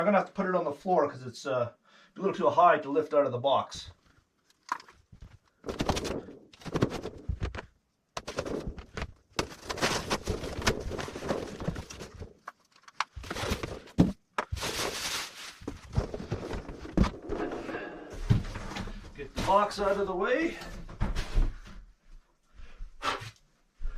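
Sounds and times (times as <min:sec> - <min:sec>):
cardboard scraping and rustling: 0:05.4 - 0:17.7.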